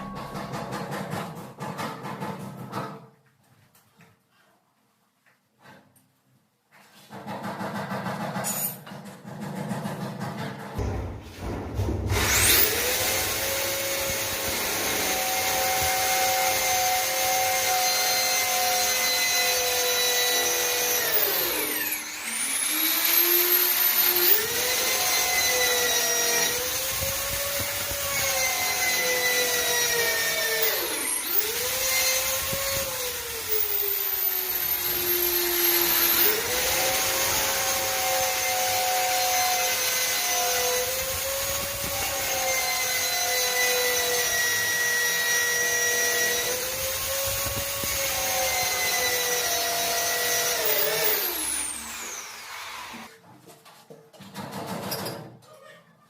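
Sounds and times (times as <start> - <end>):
power tool motor whining: 12.2 - 53.1.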